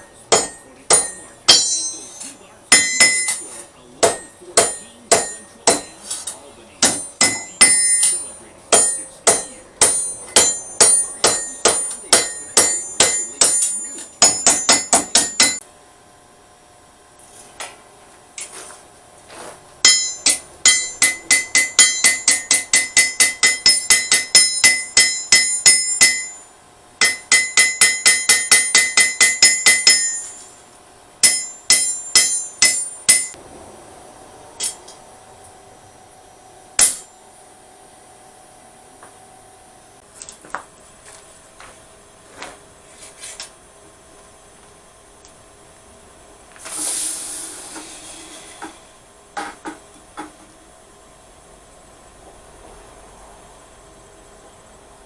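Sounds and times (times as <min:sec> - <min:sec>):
hammer striking steel on anvil: 0:00.0 - 0:15.6, 0:19.8 - 0:30.6, 0:31.2 - 0:33.4, 0:34.6 - 0:35.0, 0:36.8 - 0:37.2.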